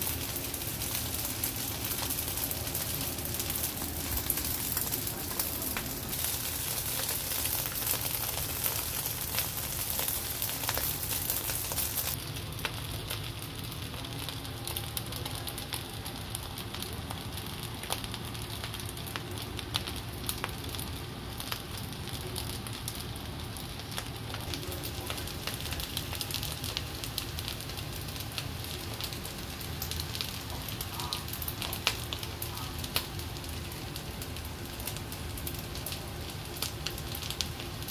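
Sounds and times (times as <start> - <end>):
fried rice sizzling in a wok: 0.0 - 37.9.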